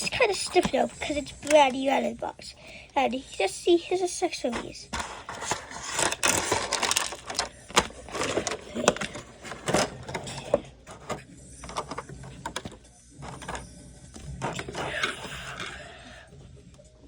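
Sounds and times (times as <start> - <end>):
packaging rustling: 4.5 - 13.6
plastic pieces clicking and knocking: 4.5 - 13.6.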